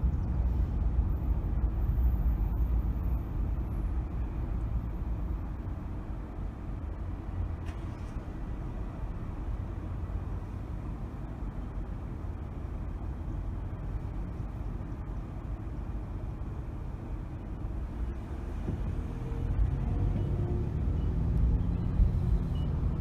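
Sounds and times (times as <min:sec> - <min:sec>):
car driving in traffic rumble: 0:00.0 - 0:23.0.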